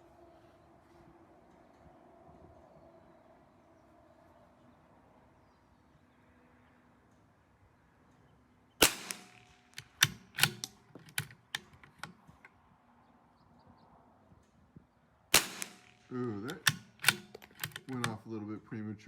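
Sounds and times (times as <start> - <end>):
rifle shots: 8.8 - 12.2, 15.3 - 18.2
rifle bolt clicking: 8.8 - 12.5, 15.4 - 18.2.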